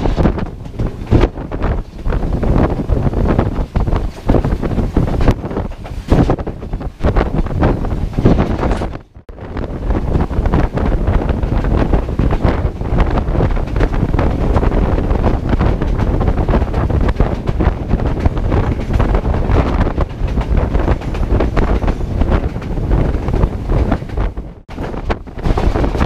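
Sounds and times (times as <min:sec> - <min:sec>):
moving train rumble and clatter: 0:00.0 - 0:26.0
wind buffeting microphone: 0:00.0 - 0:26.0.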